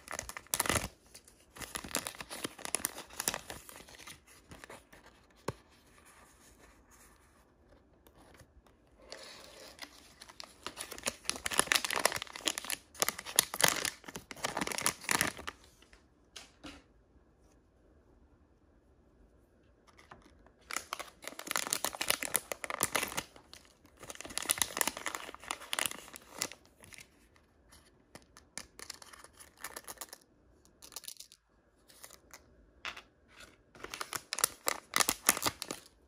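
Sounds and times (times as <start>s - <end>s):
wrapper tearing and crinkling: 0.0s - 4.2s, 9.6s - 15.6s, 20.6s - 26.6s, 33.8s - 35.9s.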